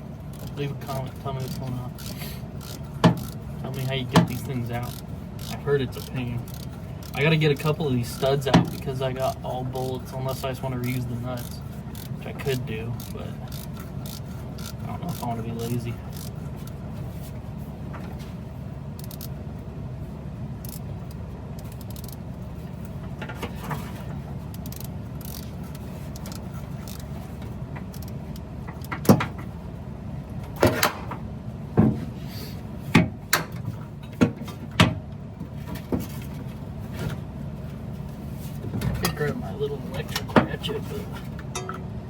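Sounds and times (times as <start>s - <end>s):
steady low hum: 0.0s - 42.0s
hand tools knocking on metal: 3.0s - 4.5s, 41.4s - 41.9s.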